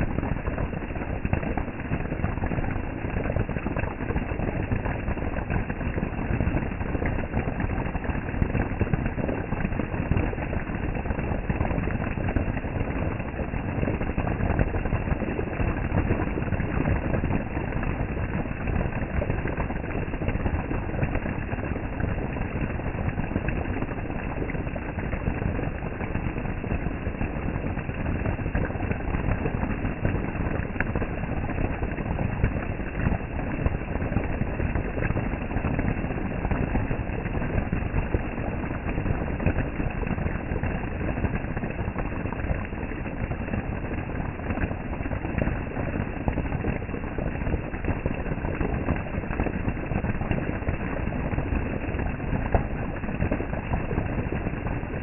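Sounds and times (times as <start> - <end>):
heavy rain falling: 15.6 - 39.8.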